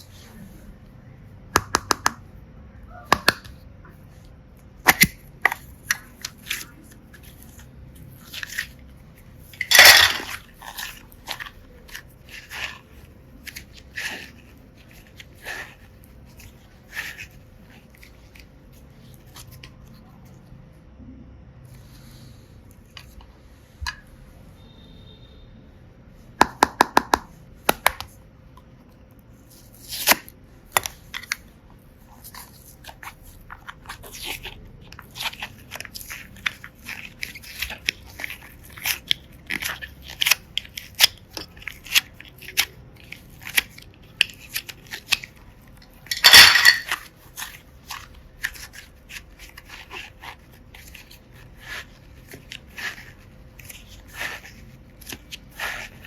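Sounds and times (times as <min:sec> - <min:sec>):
crunching slime with plastic pieces: 0:02.9 - 0:20.3, 0:29.3 - 0:56.0.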